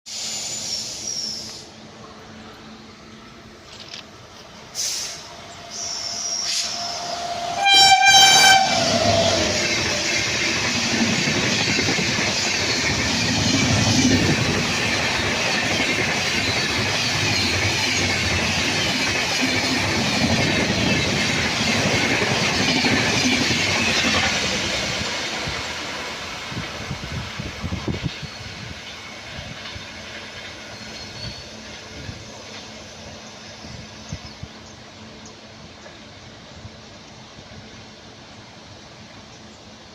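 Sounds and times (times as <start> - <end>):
train passing at high speed: 0.1 - 39.9
train horn: 5.7 - 10.1.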